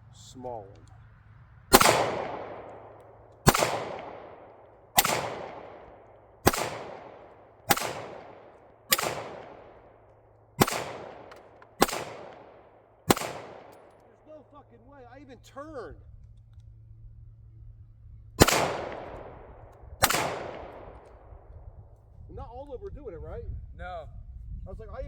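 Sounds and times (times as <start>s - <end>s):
gunshots with echo: 1.7s - 10.0s, 10.6s - 13.9s, 18.4s - 21.2s.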